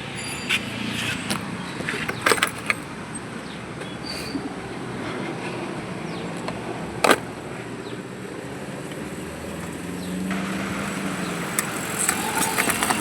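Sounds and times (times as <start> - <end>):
car engine idling: 9.6 - 13.0.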